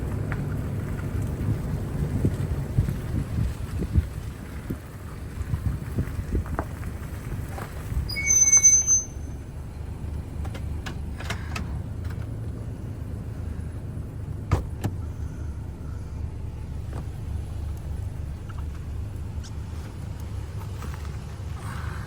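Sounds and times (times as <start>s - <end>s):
low engine and road rumble: 0.0s - 22.0s
sharp knocks under vehicle: 14.5s - 15.0s.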